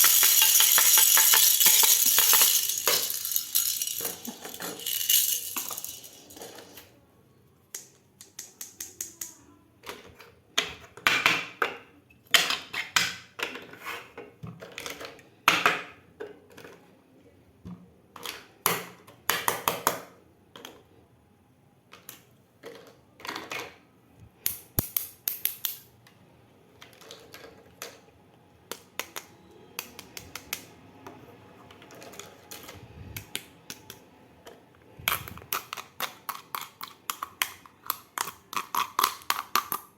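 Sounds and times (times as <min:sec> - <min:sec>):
plastic toy pieces clicking: 0:00.0 - 0:06.9, 0:07.7 - 0:10.2, 0:24.4 - 0:25.9, 0:31.8 - 0:39.9.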